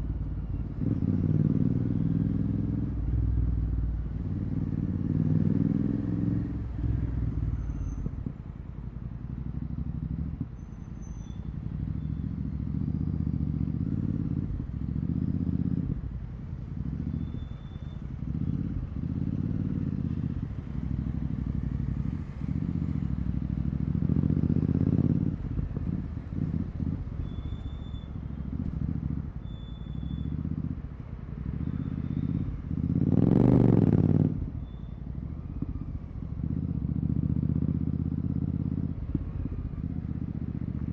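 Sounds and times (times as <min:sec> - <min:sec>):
motorcycle engine revving: 0:00.7 - 0:07.4, 0:11.6 - 0:16.0, 0:18.2 - 0:30.8, 0:31.4 - 0:34.5, 0:35.3 - 0:40.9.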